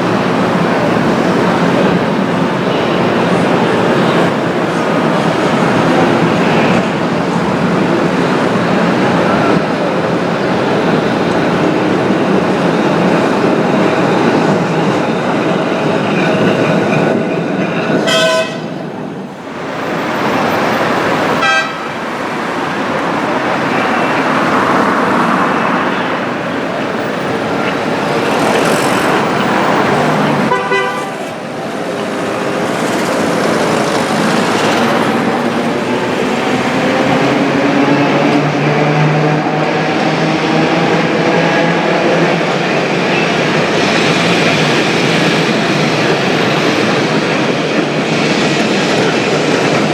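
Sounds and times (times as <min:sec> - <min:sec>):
street traffic: 0:00.0 - 0:49.9
tram wheels rumbling: 0:00.0 - 0:49.9
tram horn: 0:17.9 - 0:19.0, 0:19.9 - 0:43.3.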